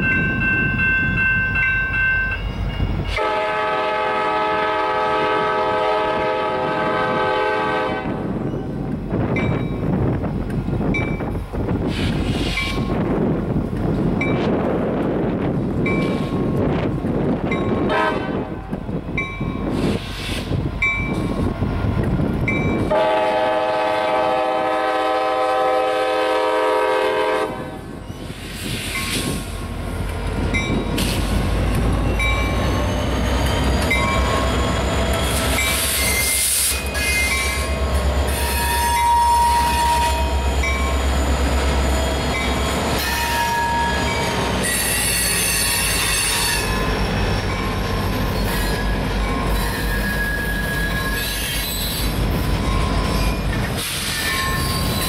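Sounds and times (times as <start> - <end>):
crossing bell dinging: 0.0 - 3.3, 8.5 - 10.0, 15.8 - 16.6, 17.5 - 18.1, 19.1 - 19.7, 20.8 - 21.5, 22.4 - 23.0, 30.4 - 31.0, 31.7 - 51.3, 52.4 - 55.0
locomotive air horn: 3.1 - 8.2, 17.9 - 18.6, 22.9 - 27.9, 38.3 - 40.5, 43.0 - 46.8
locomotives rumbling past: 27.2 - 55.0
wheel squeals: 31.6 - 37.7, 38.3 - 55.0.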